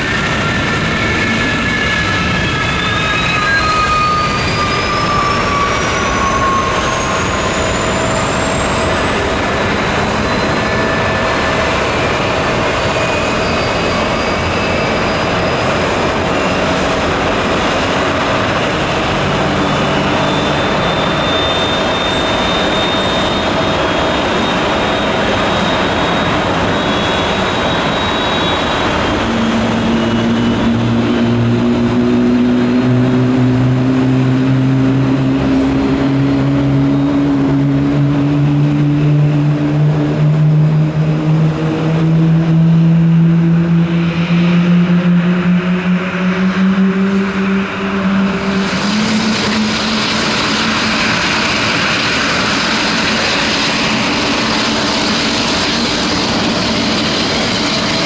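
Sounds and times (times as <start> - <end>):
jet engine roar: 0.0 - 58.0
jet engine whine rising: 0.0 - 58.0
lower tone falling in pitch: 29.0 - 39.6.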